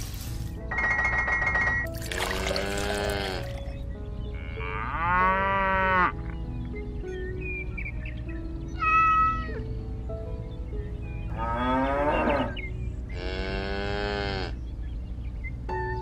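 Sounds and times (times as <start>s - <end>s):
soft background music: 0.0s - 16.0s
cow mooing: 2.6s - 3.5s, 13.2s - 14.5s.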